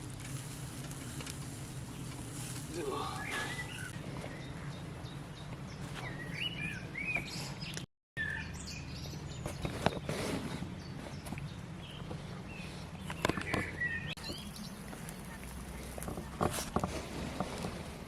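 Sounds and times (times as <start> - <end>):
low outdoor background noise: 0.0 - 18.0
small birds chirping: 0.9 - 16.4.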